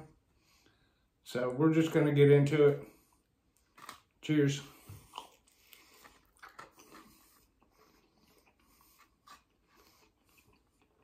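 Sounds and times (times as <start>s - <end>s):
crunchy chewing: 3.6s - 4.1s, 4.8s - 11.0s.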